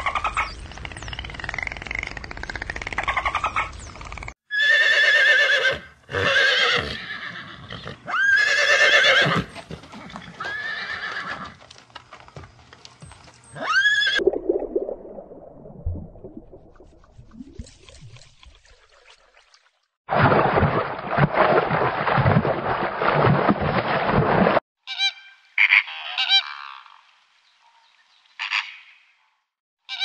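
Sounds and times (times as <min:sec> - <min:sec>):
horse whinnying: 0:04.5 - 0:11.6, 0:13.6 - 0:14.2.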